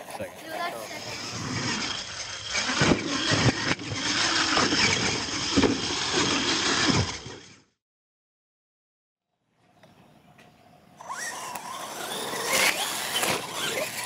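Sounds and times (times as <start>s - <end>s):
toy truck motor whining: 0.3s - 7.8s, 11.0s - 14.0s.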